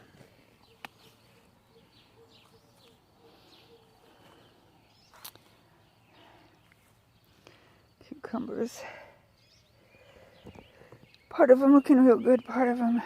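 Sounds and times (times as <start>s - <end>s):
bird chirps: 0.3s - 7.9s, 9.3s - 13.0s.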